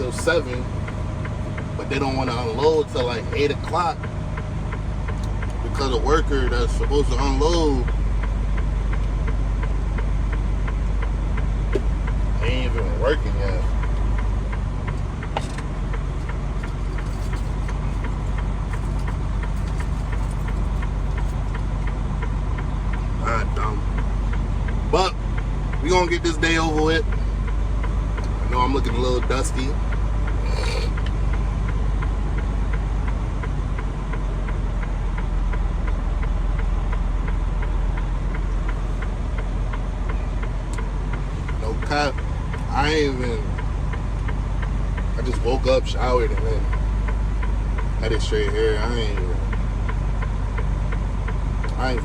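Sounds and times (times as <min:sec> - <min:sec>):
faint regular ticking: 0:00.0 - 0:52.0
truck engine rumbling: 0:00.0 - 0:52.0.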